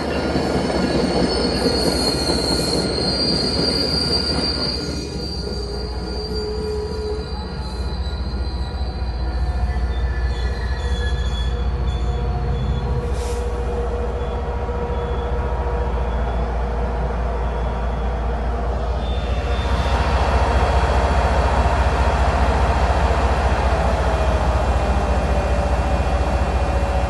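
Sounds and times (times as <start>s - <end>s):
train coaches rumbling and rattling: 0.0s - 27.0s
steel wheels squealing: 0.2s - 13.6s
diesel locomotive deep rumble: 5.5s - 27.0s.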